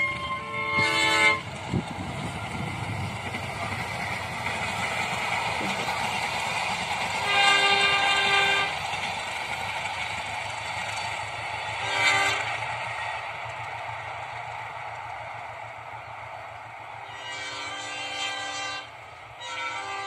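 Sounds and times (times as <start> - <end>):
train horn chord: 0.0 - 1.5, 7.2 - 8.8, 11.8 - 12.6, 17.0 - 20.0
locomotive engine and wheels rumbling: 0.0 - 20.0.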